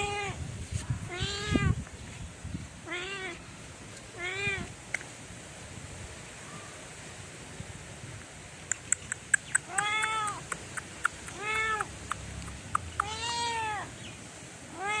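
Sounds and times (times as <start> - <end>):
cat meowing: 1.1 - 1.8, 2.8 - 3.4, 4.2 - 4.7, 9.7 - 10.4, 11.3 - 11.9, 13.0 - 13.9, 14.7 - 15.0
sharp clicks: 8.6 - 13.2.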